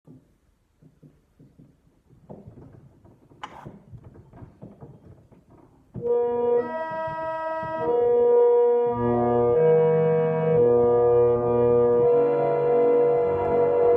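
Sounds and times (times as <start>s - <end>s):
knocking: 0.0s - 8.5s
reed organ playing chords: 6.0s - 13.9s.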